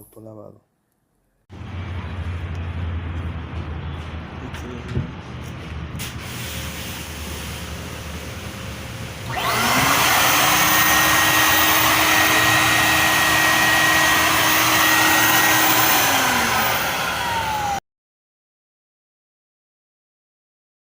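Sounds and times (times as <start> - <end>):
vacuum motor whine: 9.2 - 17.8.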